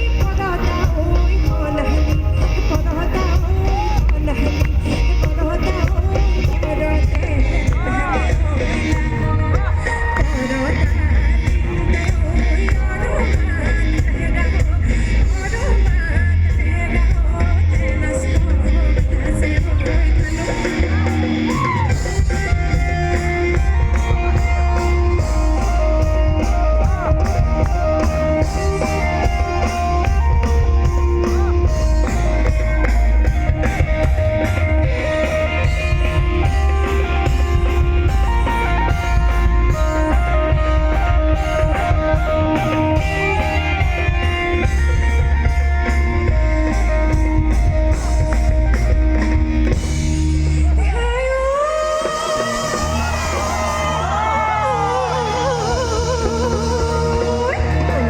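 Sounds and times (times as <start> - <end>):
drum kit: 0.0 - 58.0
electric guitar: 0.0 - 58.0
heavy bass line: 0.0 - 58.0.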